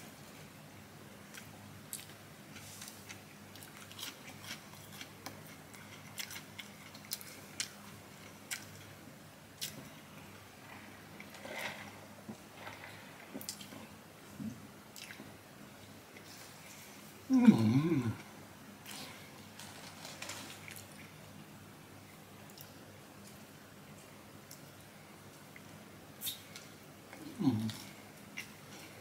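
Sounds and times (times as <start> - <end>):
faint low hum: 0.0 - 29.0
chewing crunchy food: 1.3 - 9.0
paper packaging crackling: 19.5 - 20.7.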